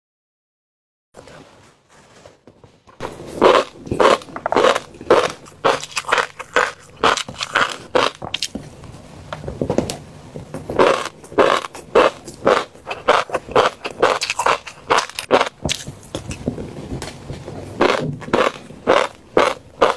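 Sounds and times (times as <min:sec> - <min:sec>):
fish roe being chewed: 0:03.0 - 0:08.7, 0:10.4 - 0:19.9.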